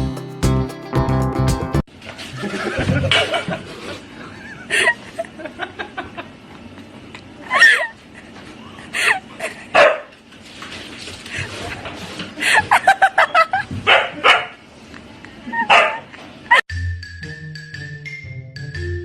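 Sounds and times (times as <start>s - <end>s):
dog barking: 9.8s - 10.1s, 13.8s - 14.6s, 15.6s - 16.1s
dog yipping: 13.2s - 14.6s, 15.6s - 16.0s
light marimba music: 16.7s - 19.0s.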